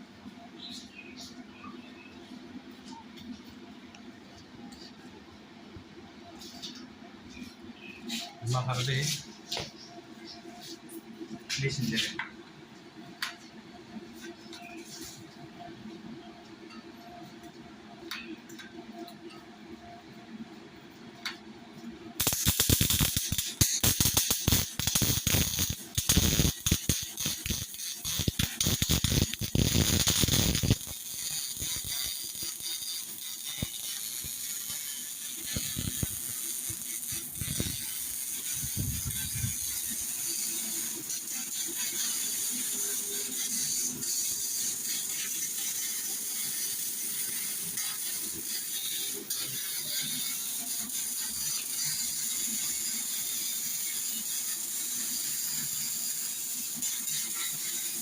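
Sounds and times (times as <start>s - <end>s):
welding arc crackling: 22.1s - 58.0s.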